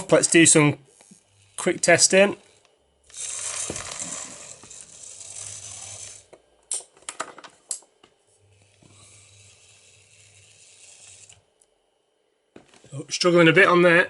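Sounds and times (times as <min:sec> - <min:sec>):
model train motor hum: 0:00.4 - 0:06.4, 0:08.4 - 0:11.5.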